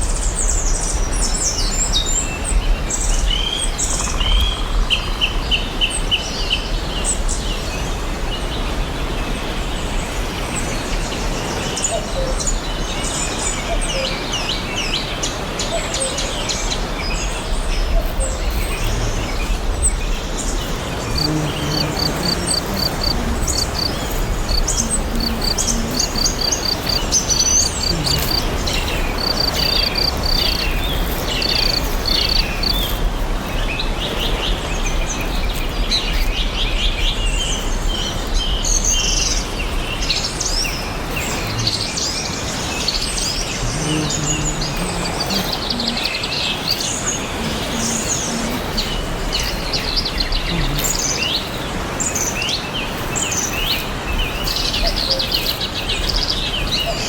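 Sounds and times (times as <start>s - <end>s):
songbirds chirping and singing: 10.8s - 57.0s
steady background hiss: 14.2s - 57.0s.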